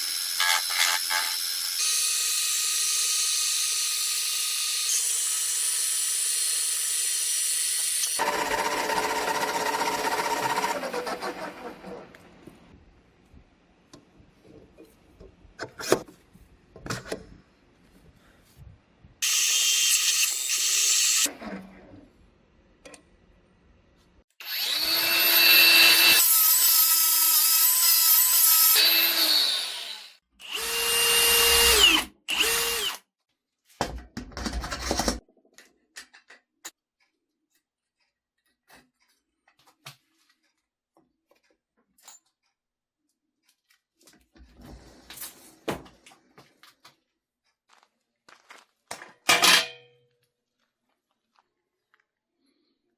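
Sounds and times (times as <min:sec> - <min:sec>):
power drill motor running: 0:08.0 - 0:11.4, 0:24.4 - 0:26.3, 0:28.8 - 0:33.0.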